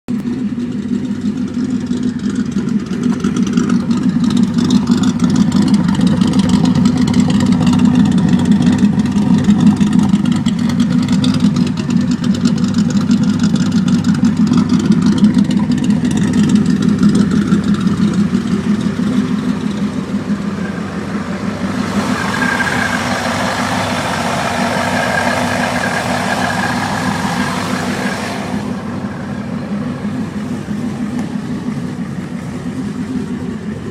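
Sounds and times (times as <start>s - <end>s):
car engine idling: 0.0s - 33.9s
hiss with high whine: 20.4s - 31.6s.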